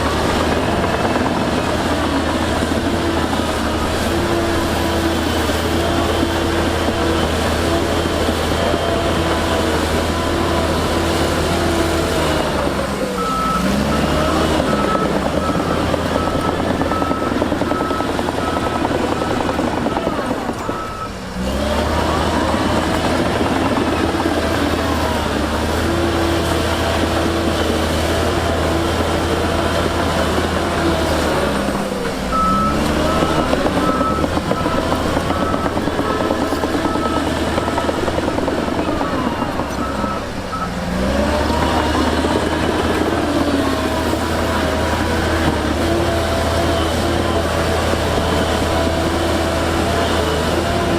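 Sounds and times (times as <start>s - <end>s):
heavy diesel machines running: 0.0s - 50.9s
reversing alarm beeping: 13.2s - 25.3s, 32.3s - 43.6s.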